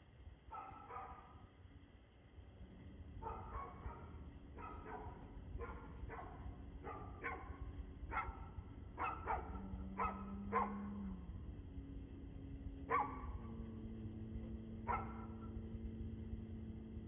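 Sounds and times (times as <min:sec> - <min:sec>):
low background rumble: 0:00.0 - 0:17.0
dog barking: 0:00.5 - 0:01.4, 0:03.2 - 0:10.9, 0:12.9 - 0:13.5, 0:14.8 - 0:15.5.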